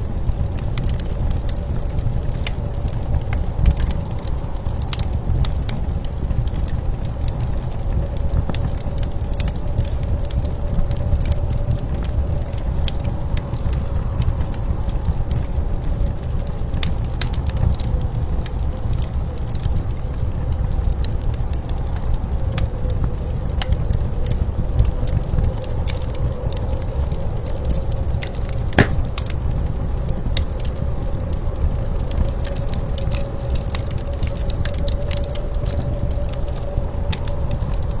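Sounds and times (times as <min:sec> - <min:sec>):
wood fire crackling: 0:28.8 - 0:29.4.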